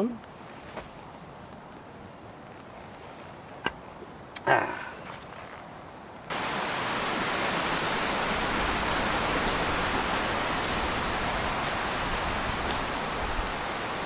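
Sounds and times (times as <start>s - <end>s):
strong wind through trees: 0.0s - 14.0s.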